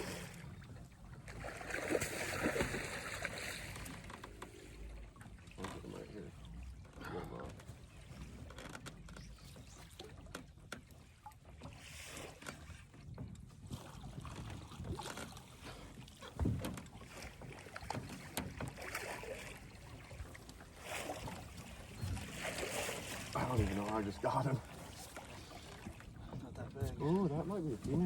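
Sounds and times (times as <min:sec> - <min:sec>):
faint water noise: 0:00.0 - 0:28.0
heavy thump against boat: 0:16.3 - 0:16.9.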